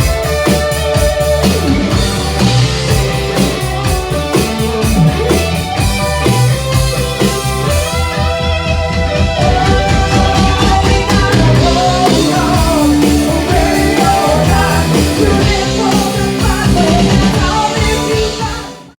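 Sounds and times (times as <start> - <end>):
drums: 0.0 - 19.0
electric guitar: 0.0 - 19.0
person singing: 9.4 - 19.0.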